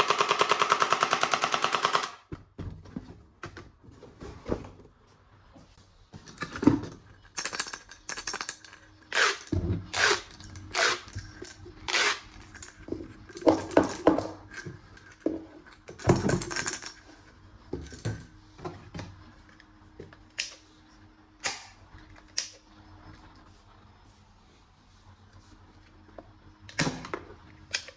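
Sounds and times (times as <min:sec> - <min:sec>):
plastic toy parts clicking and clattering: 0:00.0 - 0:02.2, 0:07.2 - 0:12.8, 0:13.4 - 0:17.0.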